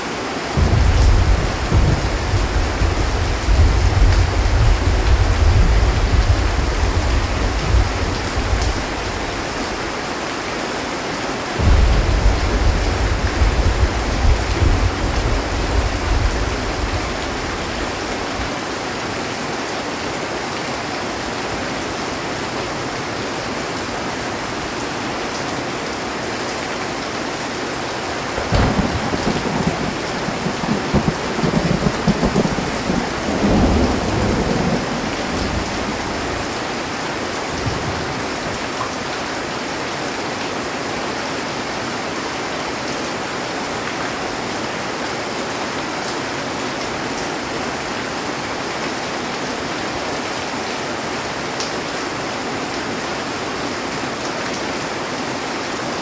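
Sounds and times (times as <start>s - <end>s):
heavy rain on a metal roof: 0.0s - 56.0s
rumbling crackling thunder: 0.6s - 10.0s, 11.6s - 18.6s, 28.2s - 38.6s.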